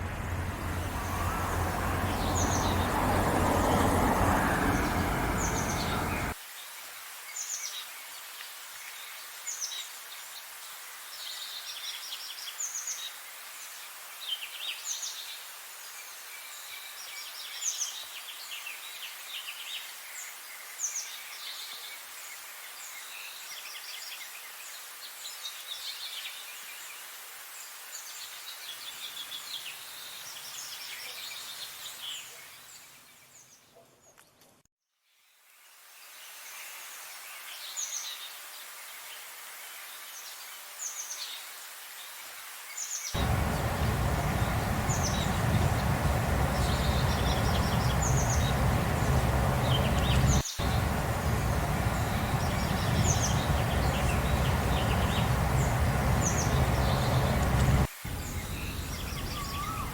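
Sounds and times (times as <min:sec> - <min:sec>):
birds chirping and singing: 0:00.0 - 0:06.4, 0:43.2 - 0:59.9
loud steady low noise: 0:43.2 - 0:59.3.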